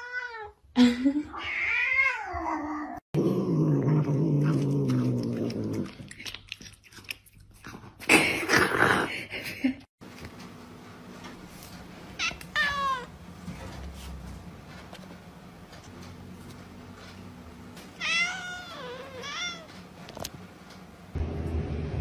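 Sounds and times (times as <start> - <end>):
cat chewing noisily: 4.4 - 8.0
cat meowing: 12.2 - 13.1, 18.0 - 19.7.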